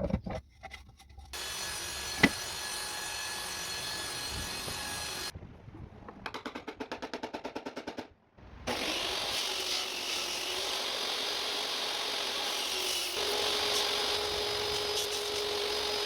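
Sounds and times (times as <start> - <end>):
power tool running on wood: 1.4 - 5.3, 8.7 - 16.0.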